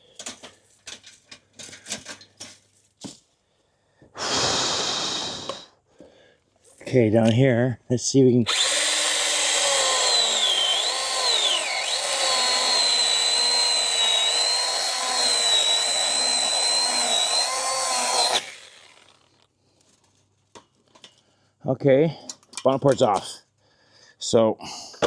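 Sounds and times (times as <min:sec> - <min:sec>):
chainsaw cutting wood: 0:04.2 - 0:05.6, 0:08.5 - 0:19.5.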